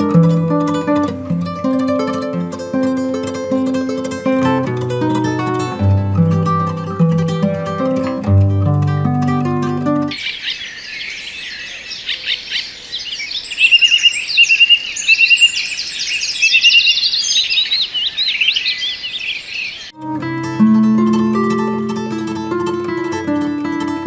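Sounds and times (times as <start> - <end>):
plucked-string music: 0.0 - 10.1, 20.0 - 24.0
songbirds chirping: 5.0 - 20.0
bird trill: 10.1 - 19.9.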